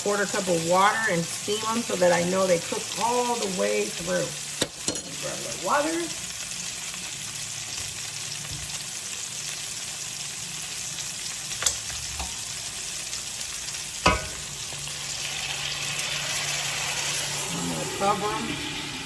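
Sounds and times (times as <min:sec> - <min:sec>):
meatballs sizzling in a frying pan: 0:00.0 - 0:19.0.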